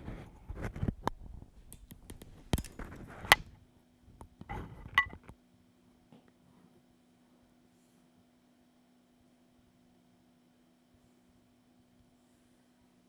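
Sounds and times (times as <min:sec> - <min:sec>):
faint hum: 0:00.0 - 0:13.0
handling clicks and knocks: 0:01.7 - 0:03.4.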